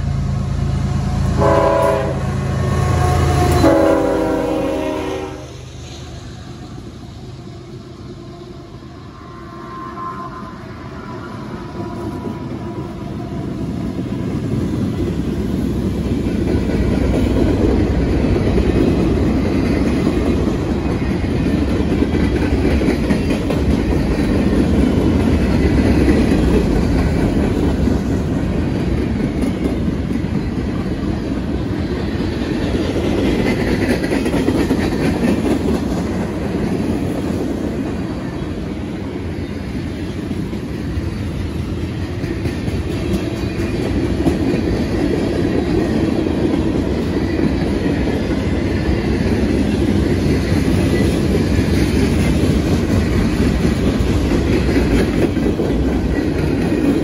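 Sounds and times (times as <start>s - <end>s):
train wheels rumbling: 0.0s - 57.0s
clickety-clack over rail joints: 11.7s - 57.0s.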